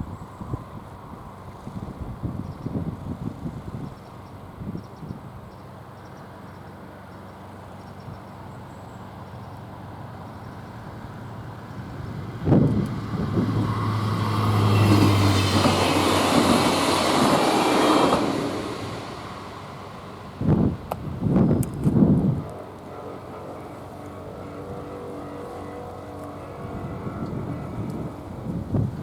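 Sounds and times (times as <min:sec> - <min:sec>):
train engine hum: 0:00.0 - 0:29.0
train wheels rushing on rails: 0:09.6 - 0:29.0
low gusts: 0:10.8 - 0:29.0.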